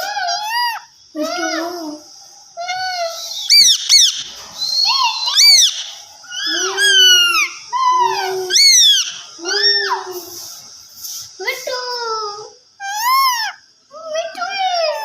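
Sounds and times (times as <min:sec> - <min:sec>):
parrot shrill calls: 0:00.0 - 0:01.7, 0:02.6 - 0:10.1, 0:12.8 - 0:13.6.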